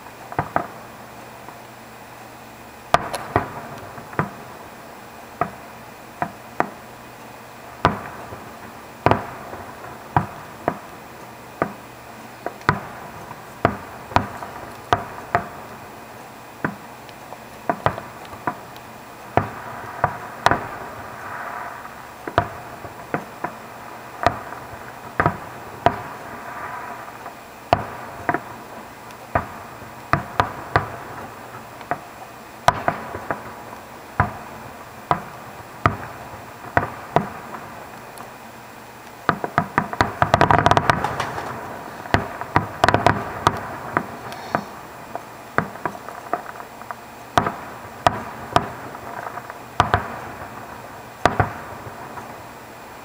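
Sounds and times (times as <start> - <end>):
firework shells bursting: 0.0 - 53.0.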